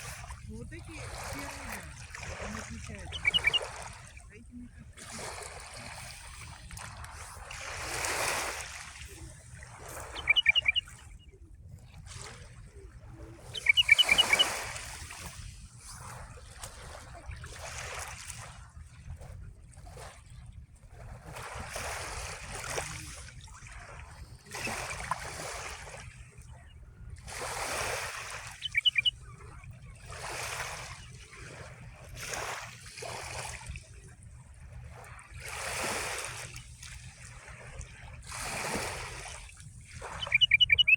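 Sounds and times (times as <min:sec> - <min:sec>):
small sea waves washing: 0:00.0 - 0:40.9
bird chirping: 0:03.0 - 0:03.7, 0:10.0 - 0:11.3, 0:13.5 - 0:14.6, 0:28.5 - 0:29.2, 0:40.2 - 0:40.9.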